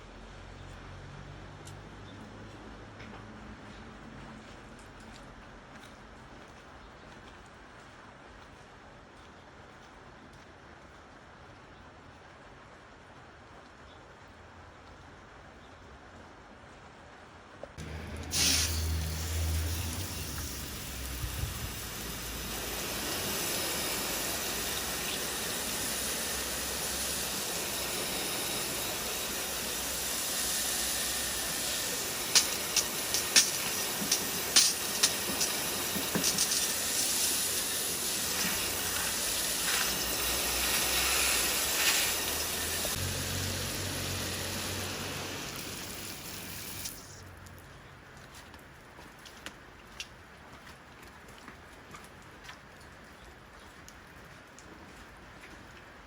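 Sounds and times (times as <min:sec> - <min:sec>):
water spray hissing: 0:17.8 - 0:47.6.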